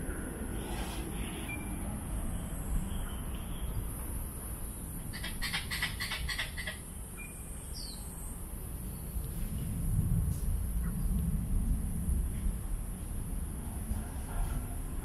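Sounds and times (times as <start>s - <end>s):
birds chirping: 1.2s - 9.2s
low rumble: 8.7s - 15.0s.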